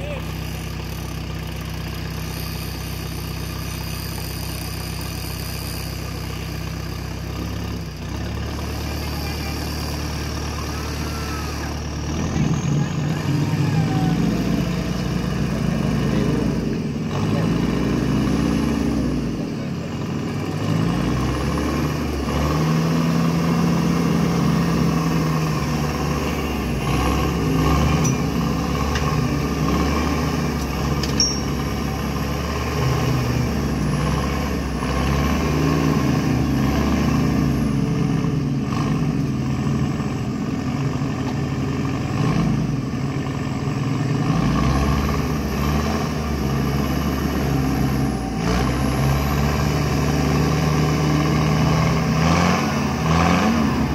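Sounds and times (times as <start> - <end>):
off-road vehicle engine revving: 0.0 - 53.9.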